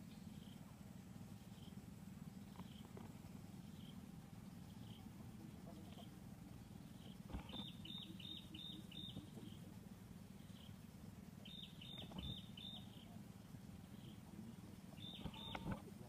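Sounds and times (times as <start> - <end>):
faint low rumble: 0.0 - 16.0
bird high chirps: 6.8 - 9.7, 11.4 - 13.2, 14.9 - 15.8.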